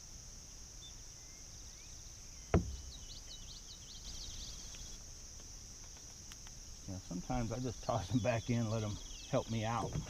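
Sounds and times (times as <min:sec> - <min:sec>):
insects droning: 0:00.0 - 0:10.0
sharp knock: 0:02.5 - 0:02.9.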